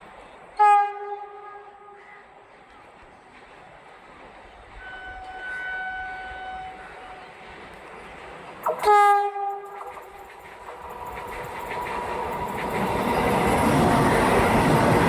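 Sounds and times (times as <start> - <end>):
train rumbling: 0.0 - 15.0
train horn blasts: 0.6 - 2.3, 4.8 - 7.3, 8.7 - 10.2.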